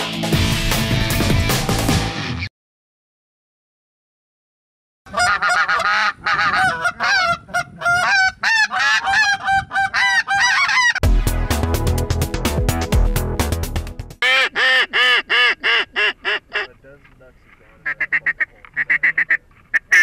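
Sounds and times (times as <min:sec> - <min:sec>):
wind buffeting microphone: 0:06.1 - 0:08.4.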